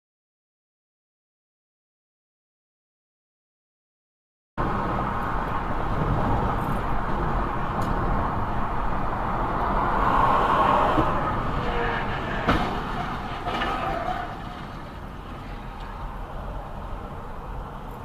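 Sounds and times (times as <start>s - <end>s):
vehicle driving rumble: 4.6s - 18.0s.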